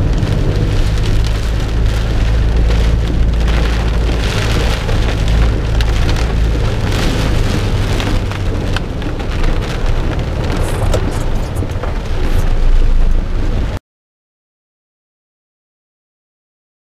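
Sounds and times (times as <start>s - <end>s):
low rumble: 0.0s - 13.8s
raindrop impacts: 0.0s - 13.8s
torrential rain pouring: 0.0s - 13.8s.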